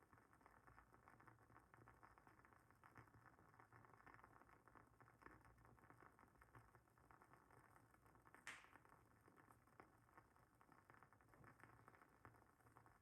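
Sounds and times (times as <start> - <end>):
candle wick pop: 8.4 - 8.8.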